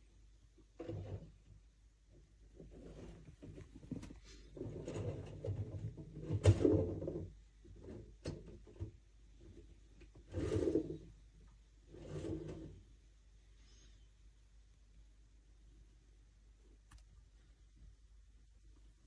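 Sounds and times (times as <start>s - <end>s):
knocks and scrapes of handling: 0.6s - 11.2s.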